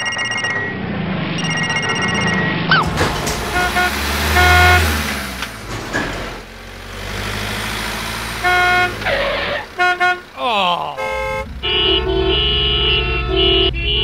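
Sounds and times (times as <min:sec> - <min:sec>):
low engine rumble: 0:00.6 - 0:14.0
cartoon horn toots: 0:02.7 - 0:05.0, 0:08.4 - 0:10.3, 0:10.9 - 0:14.0.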